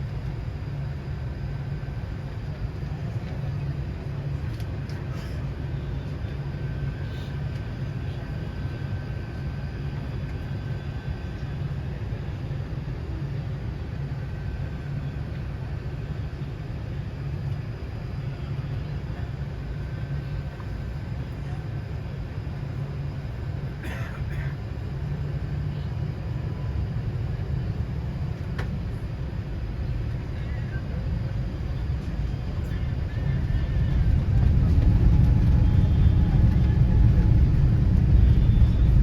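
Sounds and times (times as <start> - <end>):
airliner rumbling: 0.0 - 39.0.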